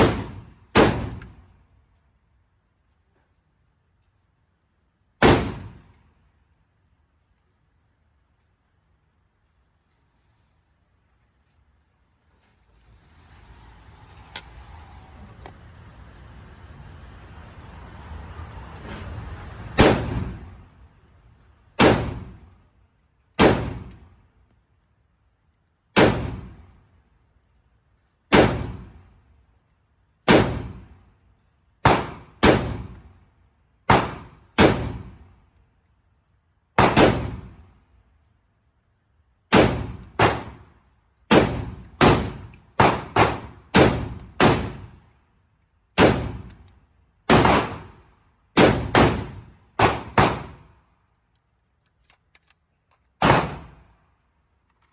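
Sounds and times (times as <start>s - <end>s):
gunshots: 0.0s - 1.3s, 5.2s - 5.9s, 19.8s - 20.5s, 21.8s - 22.5s, 23.4s - 23.9s, 26.0s - 26.6s, 28.3s - 29.0s, 30.3s - 30.8s, 31.8s - 33.0s, 33.9s - 35.2s, 36.8s - 37.6s, 39.5s - 40.7s, 41.3s - 44.9s, 46.0s - 46.5s, 47.3s - 48.0s, 48.6s - 50.7s, 53.2s - 53.8s.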